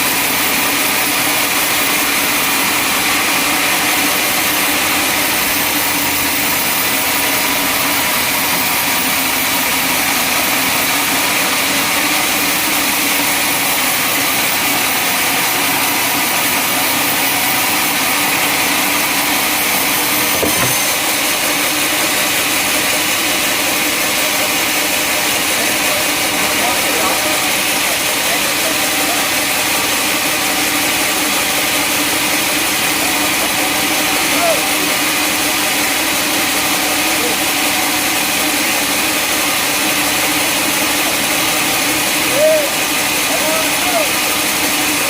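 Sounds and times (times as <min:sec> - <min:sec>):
sawmill machinery running: 0:00.0 - 0:45.0
brief knock: 0:20.3 - 0:21.0.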